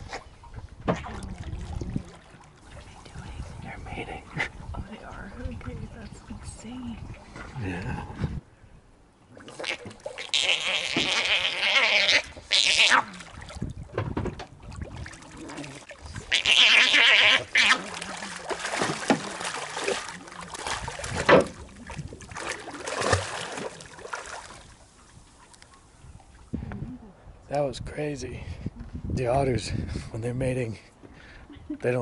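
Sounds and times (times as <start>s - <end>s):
water splashing: 0.0s - 7.7s, 9.3s - 26.6s
otters squealing: 9.6s - 13.1s, 16.3s - 18.0s.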